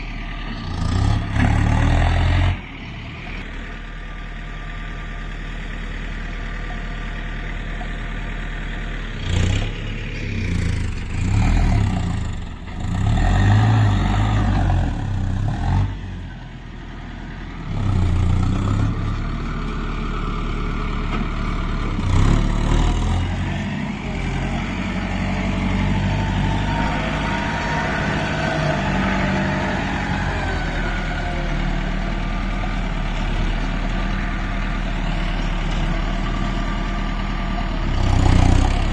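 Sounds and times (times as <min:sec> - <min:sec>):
diesel tractor engine revving: 0:00.0 - 0:38.9.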